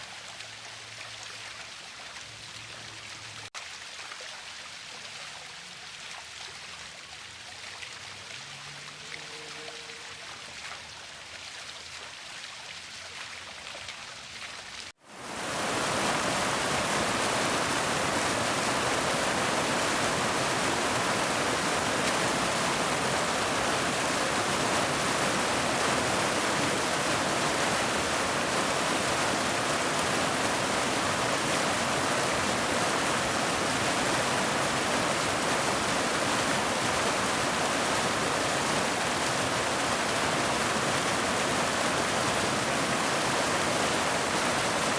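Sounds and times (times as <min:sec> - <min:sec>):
waterfall rushing: 0:15.0 - 0:44.9.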